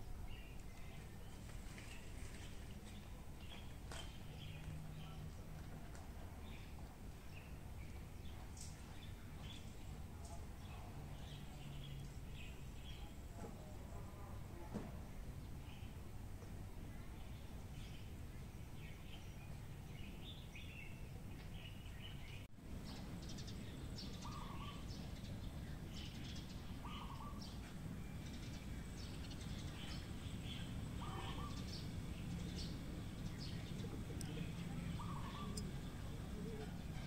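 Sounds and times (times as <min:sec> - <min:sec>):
birds chirping: 0:00.0 - 0:05.8, 0:06.4 - 0:14.4, 0:16.8 - 0:37.0
low background rumble: 0:21.9 - 0:37.0.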